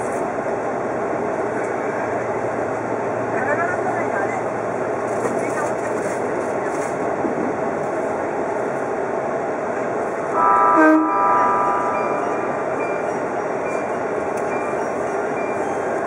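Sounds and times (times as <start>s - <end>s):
train wheels rumbling on rail: 0.0s - 16.0s
train horn blast: 10.3s - 12.8s.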